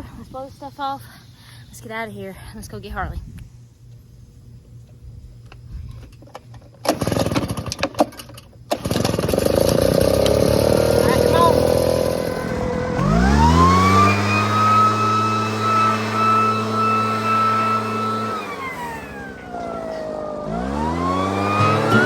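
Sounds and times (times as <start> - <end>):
leaf blower engine revving: 6.8 - 7.9, 8.7 - 22.0.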